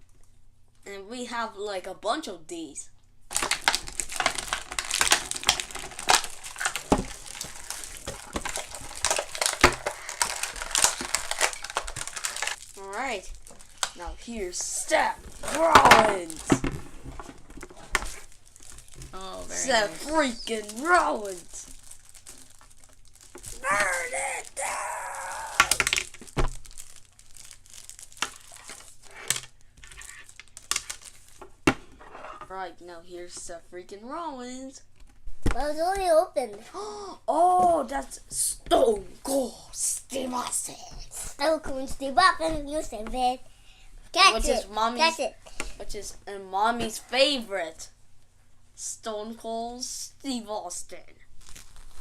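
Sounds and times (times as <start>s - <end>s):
packaging crinkling: 3.3s - 31.7s, 51.2s - 52.0s.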